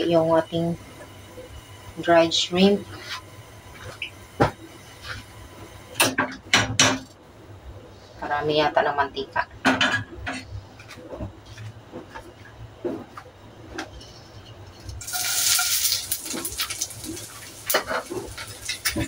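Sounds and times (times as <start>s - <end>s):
shrimp sizzling in oil: 15.0s - 19.0s.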